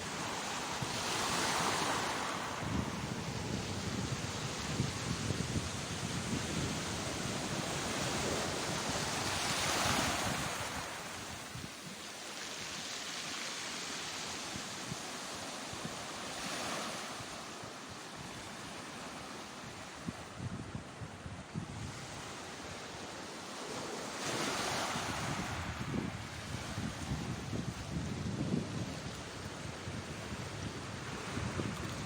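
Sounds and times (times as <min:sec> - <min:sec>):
wind buffeting microphone: 0:00.0 - 0:11.8, 0:20.0 - 0:22.8, 0:24.8 - 0:32.0
sea waves breaking: 0:00.0 - 0:20.0.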